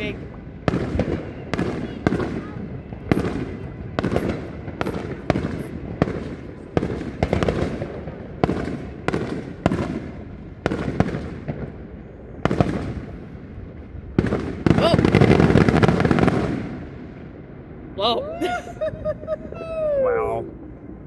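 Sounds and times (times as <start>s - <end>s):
fireworks crackling: 0.0s - 17.2s.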